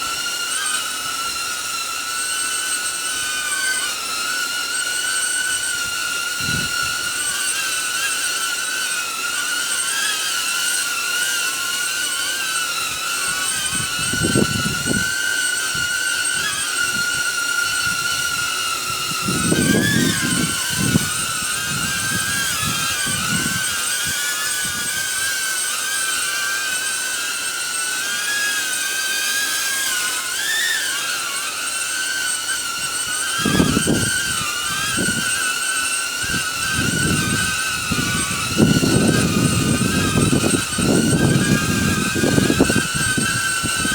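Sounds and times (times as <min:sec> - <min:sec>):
drone propellers whining: 0:00.0 - 0:43.9
wind buffeting microphone: 0:05.8 - 0:07.1, 0:13.3 - 0:25.1, 0:33.4 - 0:35.4, 0:36.2 - 0:43.9.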